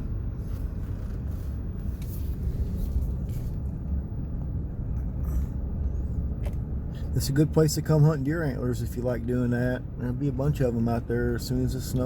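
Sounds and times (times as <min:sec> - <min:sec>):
car driving slowly: 0:00.0 - 0:12.0.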